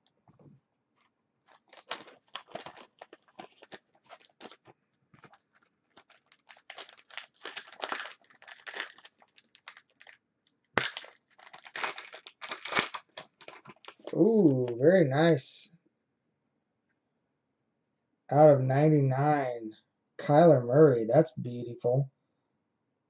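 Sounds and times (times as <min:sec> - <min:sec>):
foil wrappers crinkling and tearing: 0:01.5 - 0:14.6.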